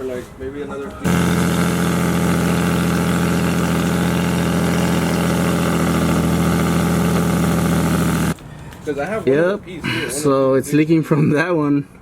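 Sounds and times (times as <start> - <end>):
car engine idling: 1.1 - 8.4.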